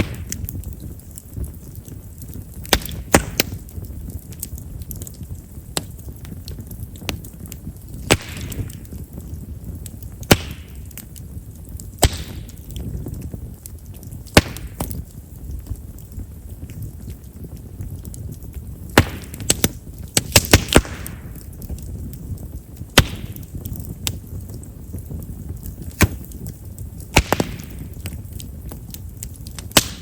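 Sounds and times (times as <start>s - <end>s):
firewood crackling and popping: 0.0s - 30.0s.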